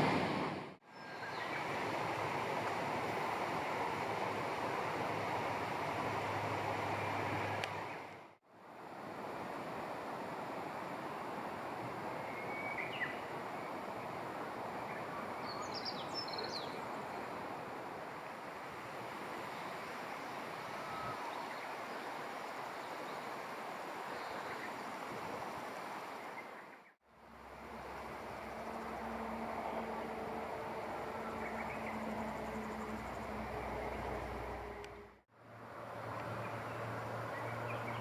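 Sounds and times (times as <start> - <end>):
faint bird chirps: 20.7 - 22.1.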